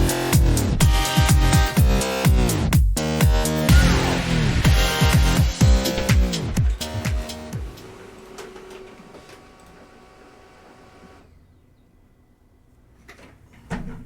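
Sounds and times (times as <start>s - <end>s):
music sting: 0.0s - 7.9s.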